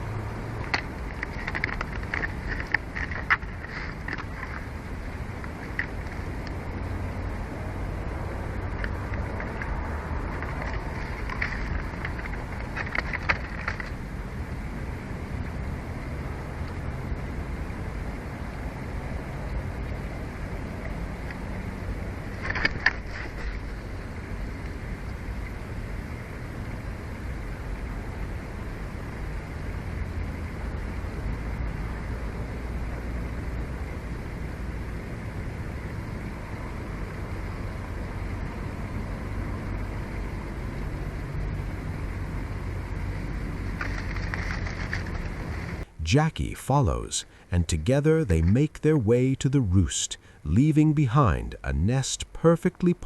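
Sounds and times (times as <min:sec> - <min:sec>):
outdoor rumble and hiss: 0:00.0 - 0:53.0
high crackly sounds: 0:00.6 - 0:06.6, 0:08.8 - 0:14.1, 0:43.6 - 0:45.9.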